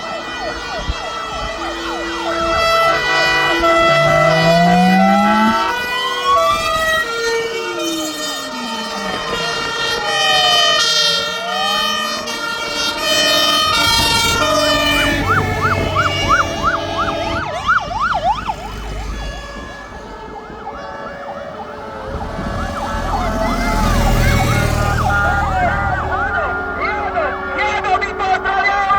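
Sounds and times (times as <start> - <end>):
fire engine sirens wailing: 0.0 - 28.9
heavy vehicle engine rumble: 13.4 - 28.9.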